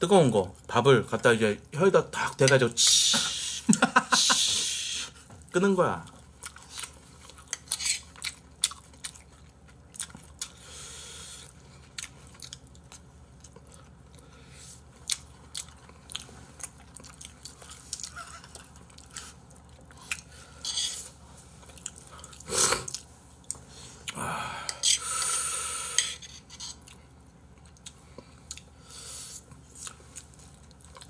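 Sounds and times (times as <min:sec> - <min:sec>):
chewing and wet mouth noises: 0:05.4 - 0:24.2, 0:26.7 - 0:31.0.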